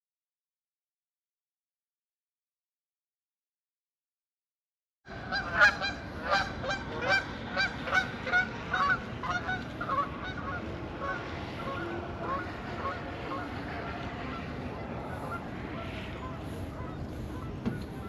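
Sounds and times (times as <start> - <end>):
geese honking: 5.1 - 18.0.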